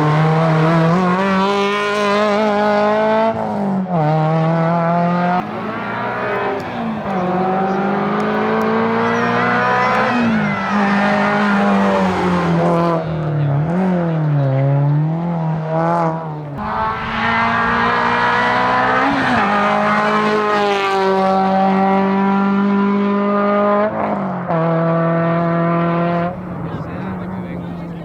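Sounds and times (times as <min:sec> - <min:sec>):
racing car engine at high revs: 0:00.0 - 0:28.0.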